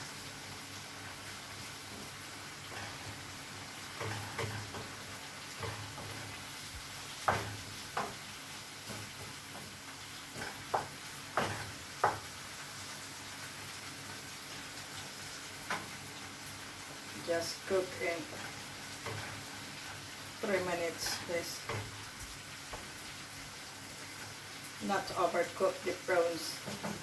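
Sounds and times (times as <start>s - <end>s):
food sizzling in a pan: 0.0s - 27.0s
utensil knocking and scraping pan: 4.0s - 5.0s, 8.8s - 12.3s.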